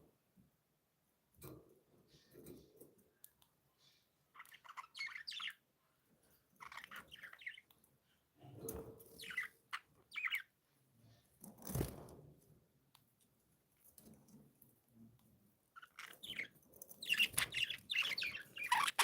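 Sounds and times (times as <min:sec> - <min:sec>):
budgerigars chirping and warbling: 0:03.8 - 0:05.6, 0:06.5 - 0:07.7, 0:08.6 - 0:10.5, 0:15.8 - 0:19.0.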